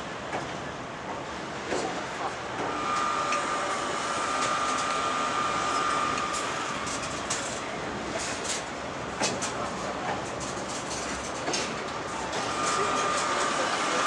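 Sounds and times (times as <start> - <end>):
freight wagons running on rails: 5.8 - 14.0.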